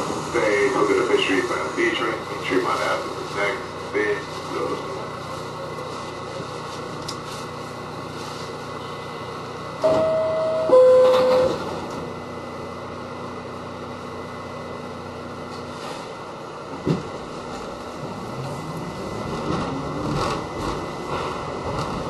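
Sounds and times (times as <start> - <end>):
subway car interior hum: 0.0 - 22.0
faint steady low tone: 9.8 - 11.6
two-tone door-closing chime: 9.8 - 11.8.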